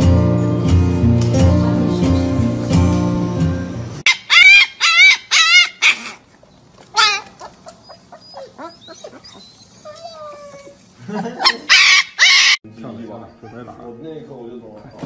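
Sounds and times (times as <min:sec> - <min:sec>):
animal crying: 0:04.0 - 0:06.3, 0:06.9 - 0:10.8, 0:11.4 - 0:12.6.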